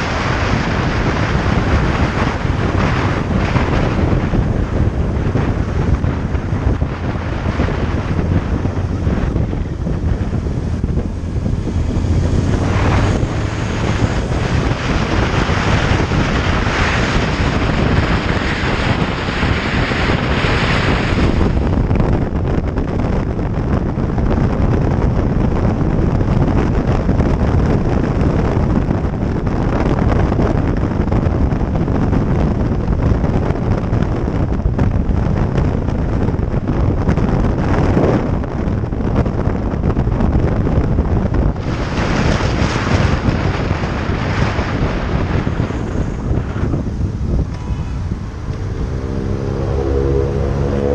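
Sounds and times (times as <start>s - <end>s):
motorcycle engine: 0.0s - 22.2s, 43.7s - 50.9s
wind buffeting microphone: 0.0s - 50.9s.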